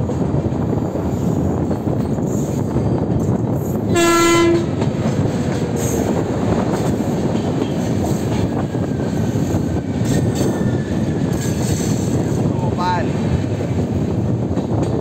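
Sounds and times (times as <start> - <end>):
train wheels rumbling on rails: 0.0 - 15.0
train horn blast: 3.9 - 4.9.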